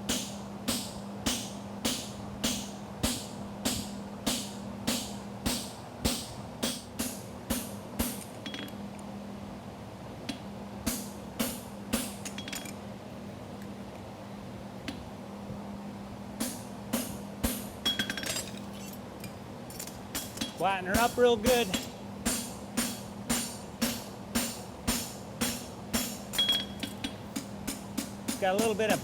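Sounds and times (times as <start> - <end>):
hammer striking horseshoe on anvil: 0.1 - 8.8, 16.4 - 18.9, 19.8 - 29.0.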